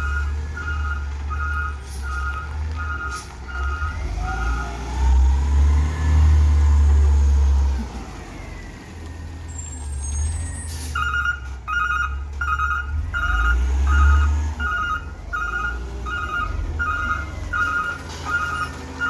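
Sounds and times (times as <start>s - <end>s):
reversing alarm beeping: 0.0s - 4.8s, 10.2s - 19.0s
truck engine rumbling: 0.0s - 19.0s.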